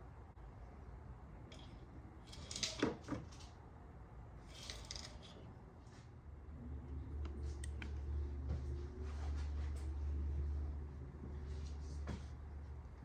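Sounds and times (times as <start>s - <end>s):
clicks and rattles of parts: 1.5s - 3.6s, 4.5s - 5.5s.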